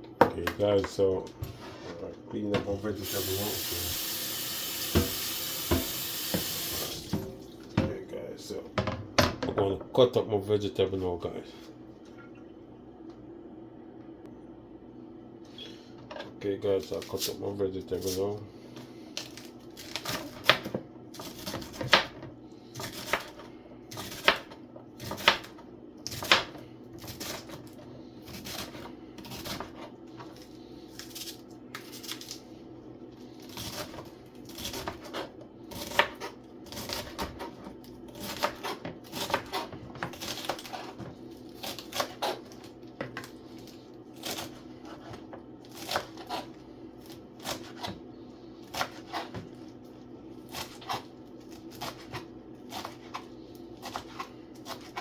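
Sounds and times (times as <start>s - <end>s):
knife chopping on cutting board: 4.8s - 7.3s, 19.8s - 27.6s, 33.5s - 41.0s, 41.6s - 43.3s, 44.2s - 48.0s, 48.7s - 49.6s, 51.7s - 55.0s
steady low hum: 6.6s - 55.0s.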